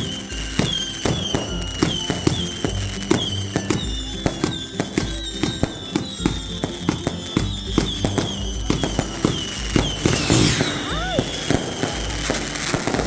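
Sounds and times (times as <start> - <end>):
music with a bass line: 0.0 - 10.1
fireworks bangs and cracks: 0.0 - 13.0.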